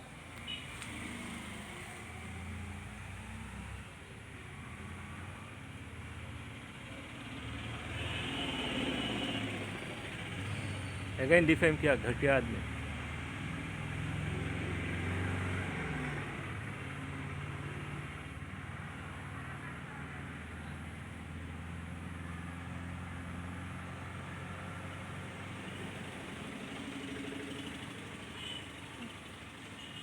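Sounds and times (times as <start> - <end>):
vehicle engine humming: 20.2 - 30.0.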